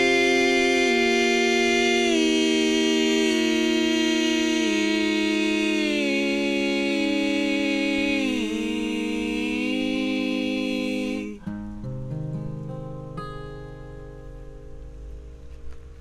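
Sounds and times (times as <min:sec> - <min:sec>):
voices humming in harmony: 0:00.0 - 0:11.6.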